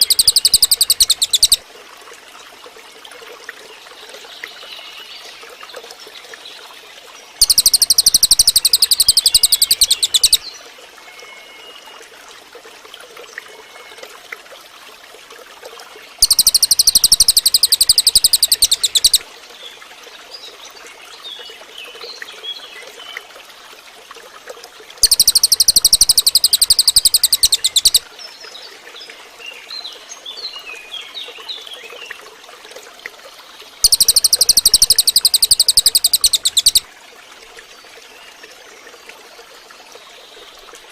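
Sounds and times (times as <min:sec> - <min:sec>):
bird singing rapid high trill: 0:00.0 - 0:01.6, 0:07.4 - 0:10.4, 0:16.2 - 0:19.2, 0:25.0 - 0:28.0, 0:33.8 - 0:36.8
faint soft bird chirps: 0:00.0 - 0:01.6, 0:07.4 - 0:10.4, 0:16.2 - 0:19.2, 0:25.0 - 0:28.7, 0:33.8 - 0:36.8.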